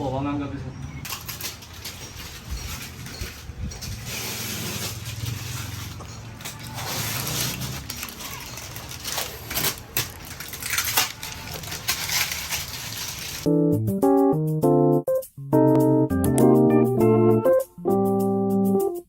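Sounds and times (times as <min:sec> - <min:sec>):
rustling and crinkling: 0:01.0 - 0:13.5.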